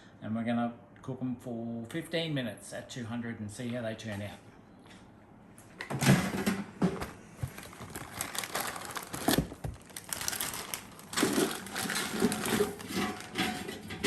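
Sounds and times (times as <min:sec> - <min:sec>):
food packaging crinkling: 0:07.4 - 0:13.9.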